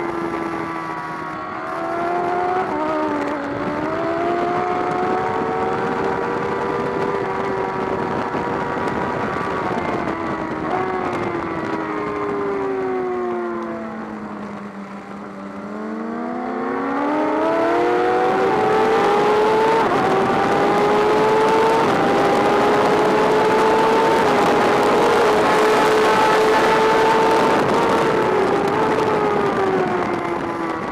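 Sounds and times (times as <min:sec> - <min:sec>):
wind noise on microphone: 0:00.0 - 0:14.1, 0:14.8 - 0:30.9
motorcycle engine: 0:00.0 - 0:30.9.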